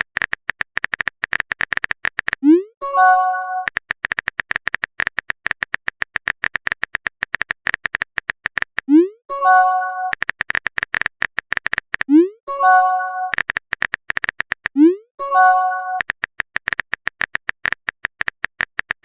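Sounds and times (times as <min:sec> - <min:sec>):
phone keyboard typing clicks: 0:00.0 - 0:19.0
rising pop sound effect: 0:08.9 - 0:10.2.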